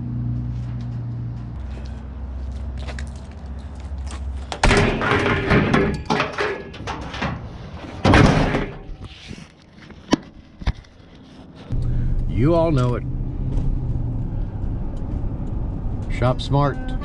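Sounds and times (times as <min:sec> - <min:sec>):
loud thumps and bangs: 0:04.6 - 0:09.0
low steady rumble: 0:11.7 - 0:17.0.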